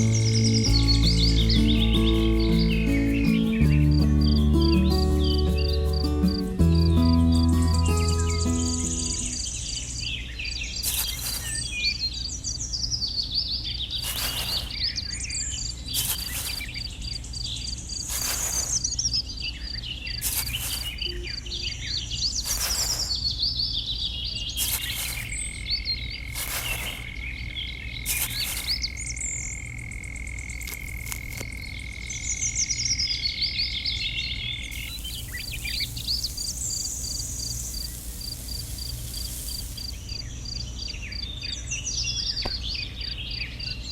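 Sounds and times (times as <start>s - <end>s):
insects chirping: 0.0s - 9.8s, 10.8s - 12.0s, 14.0s - 19.4s, 20.1s - 21.7s, 22.3s - 23.3s, 24.6s - 41.2s
low steady hum: 0.0s - 10.1s
bird calls: 0.0s - 30.7s, 31.4s - 41.2s
high whistle-like tone: 20.9s - 21.7s.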